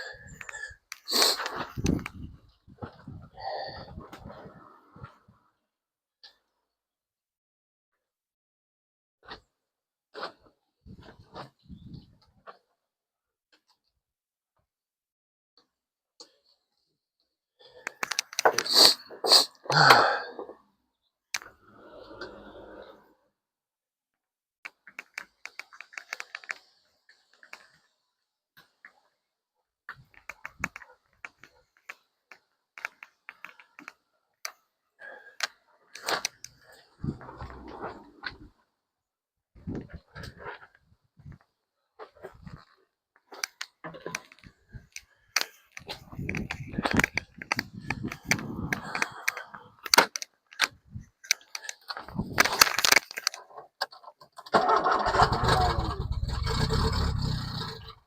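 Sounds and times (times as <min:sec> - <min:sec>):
sharp clicks and light knocks: 0:24.6 - 0:26.7, 0:43.2 - 0:54.5
engine turning over on starter: 0:54.6 - 0:58.0.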